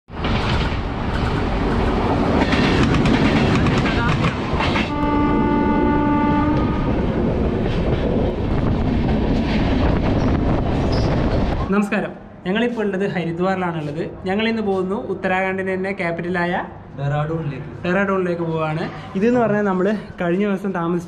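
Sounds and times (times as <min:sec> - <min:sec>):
train wheels clattering on rails: 0:00.1 - 0:04.9
multi-tone train horn: 0:04.9 - 0:07.2.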